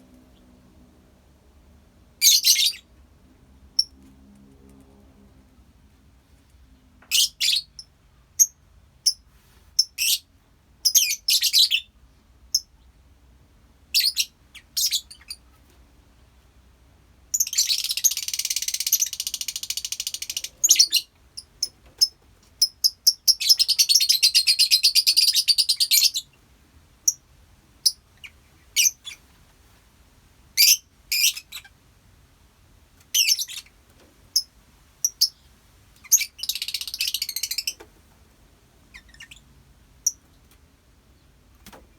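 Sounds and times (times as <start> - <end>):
lovebirds chirping: 2.2 - 2.9, 17.3 - 26.4, 27.8 - 29.3, 30.6 - 31.8, 33.1 - 37.8, 38.8 - 41.4.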